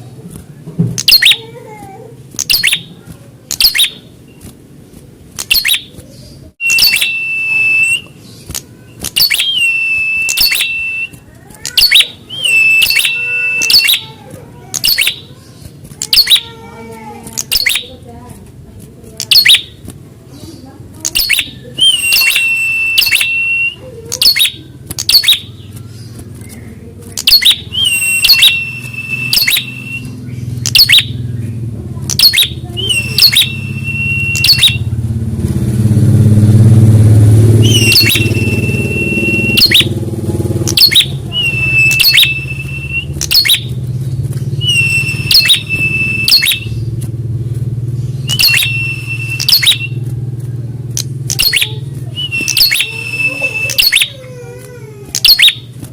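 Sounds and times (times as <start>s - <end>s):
low engine rumble: 0.0s - 55.9s
bird click and high whistle call: 1.0s - 1.4s, 2.4s - 2.9s, 3.5s - 4.0s, 5.4s - 5.9s, 6.6s - 14.2s, 14.8s - 15.3s, 16.0s - 16.5s, 17.4s - 17.9s, 21.0s - 25.5s, 26.4s - 31.1s, 32.1s - 34.9s, 37.6s - 39.9s, 40.7s - 43.8s, 44.6s - 46.8s, 48.3s - 50.0s, 51.0s - 54.2s, 55.1s - 55.7s.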